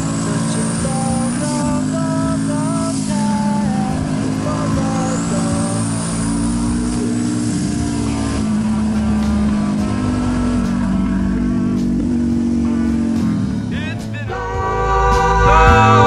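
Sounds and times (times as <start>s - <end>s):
high turbo whine: 0.0s - 16.0s
motorcycle engine running: 0.0s - 16.0s.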